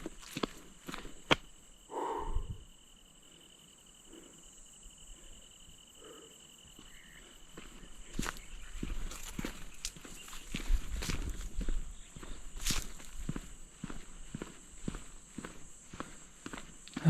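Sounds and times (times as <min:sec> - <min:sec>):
footstep clicks: 0:00.0 - 0:01.5
insects buzzing: 0:00.0 - 0:17.0.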